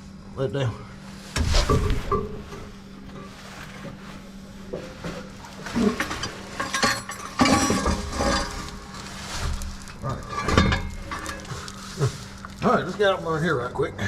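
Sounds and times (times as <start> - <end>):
steady low hum: 0.0 - 14.0
metal clinks and knocks: 4.8 - 13.2.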